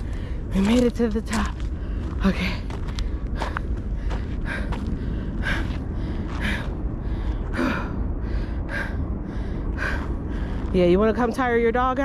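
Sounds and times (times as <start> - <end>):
person breathing hard: 3.0 - 10.7.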